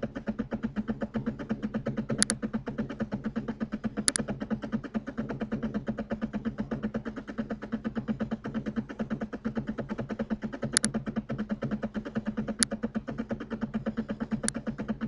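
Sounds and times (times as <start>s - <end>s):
pulsing buzzing hum: 0.0s - 15.0s
computer mouse clicks: 2.1s - 2.4s, 4.0s - 4.3s, 10.7s - 11.0s, 12.5s - 12.8s, 14.3s - 14.7s.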